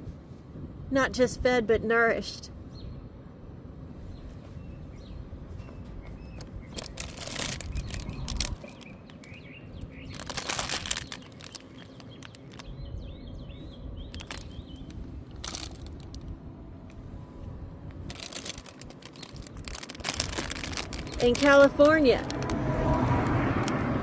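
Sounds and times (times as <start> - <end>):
small birds chirping: 4.1 - 16.2, 18.1 - 22.4
loud rustling: 18.0 - 22.5.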